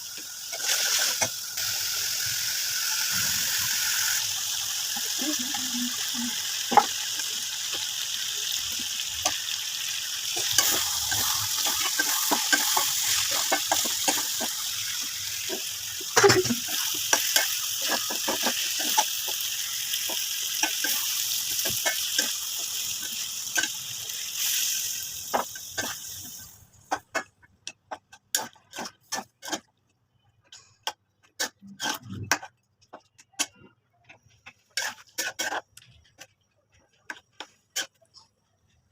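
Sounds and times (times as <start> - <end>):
chicken sizzling in a pan: 0.0 - 26.6
spatula scraping a pan: 8.5 - 23.7, 26.9 - 29.7, 30.5 - 32.6, 33.4 - 35.8, 37.0 - 38.2.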